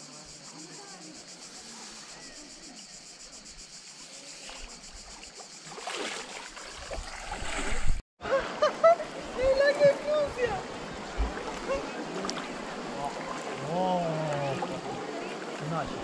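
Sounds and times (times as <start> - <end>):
voices: 0.0 - 5.0, 8.3 - 16.0
insects buzzing: 0.0 - 8.0
soft river water: 0.0 - 16.0
splashing and sloshing water: 4.1 - 8.0, 9.0 - 16.0.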